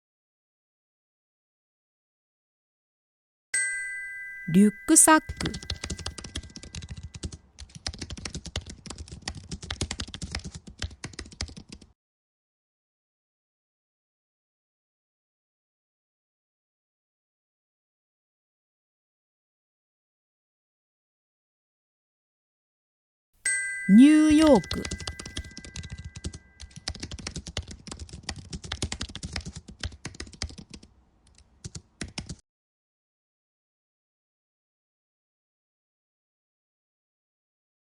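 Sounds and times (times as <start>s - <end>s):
keyboard typing: 4.6s - 11.9s, 23.9s - 32.4s.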